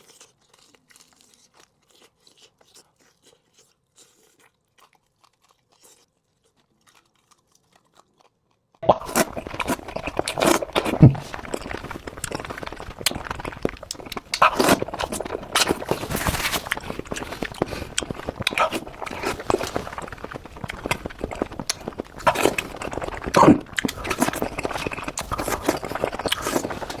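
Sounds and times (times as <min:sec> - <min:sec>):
chewing and crunching food: 0:00.0 - 0:27.0
wet mouth clicks and smacks: 0:08.8 - 0:27.0.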